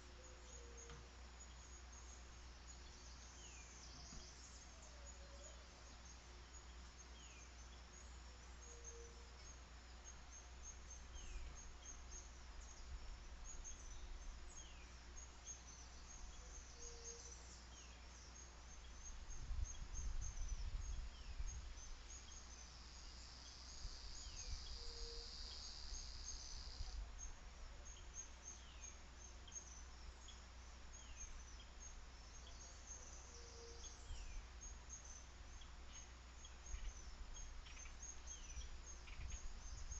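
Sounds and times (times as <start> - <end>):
rapid high insect chirping: 0.0 - 39.9
wind rumble on microphone: 19.0 - 22.2, 38.4 - 39.9.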